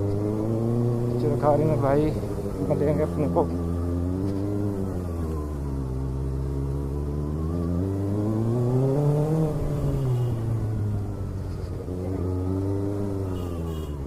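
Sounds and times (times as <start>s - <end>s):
motorcycle engine accelerating: 0.0s - 13.8s.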